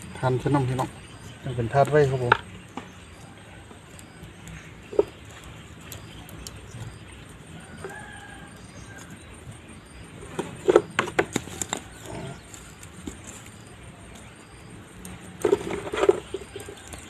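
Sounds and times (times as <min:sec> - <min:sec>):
rooster crowing faintly: 0:07.5 - 0:09.3.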